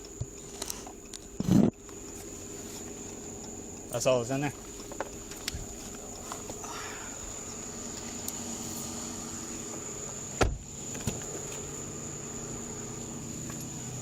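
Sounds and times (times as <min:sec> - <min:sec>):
vehicle idling hum: 0:00.0 - 0:14.0
thin high whine: 0:05.6 - 0:14.0.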